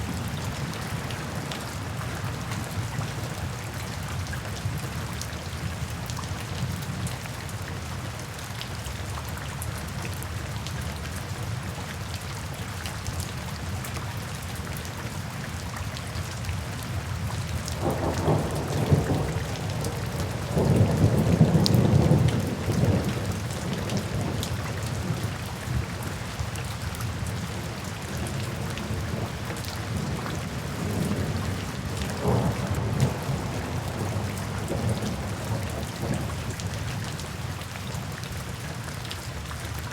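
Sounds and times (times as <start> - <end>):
steady rain: 0.0 - 39.9
thunder rumbling: 17.8 - 25.1, 29.9 - 36.8.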